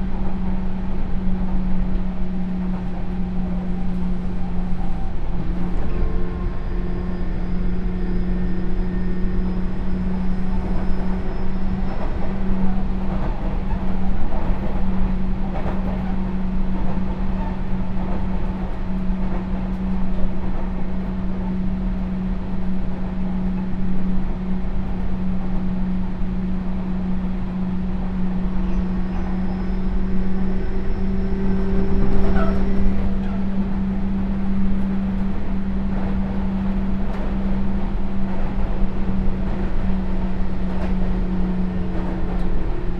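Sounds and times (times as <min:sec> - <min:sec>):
traction equipment whine: 0:00.0 - 0:13.6, 0:25.8 - 0:42.9
train wheels rumbling on rails: 0:00.0 - 0:42.9.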